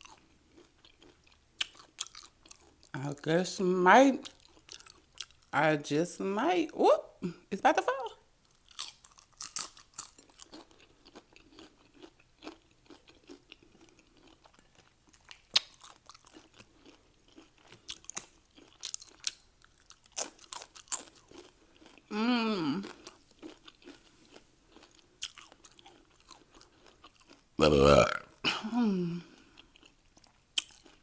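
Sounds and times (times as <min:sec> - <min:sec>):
chewing crunchy chips: 0:00.0 - 0:03.0, 0:04.2 - 0:05.6, 0:08.4 - 0:28.5, 0:29.2 - 0:31.0
brief vocal sound: 0:22.1 - 0:22.8, 0:27.6 - 0:29.2.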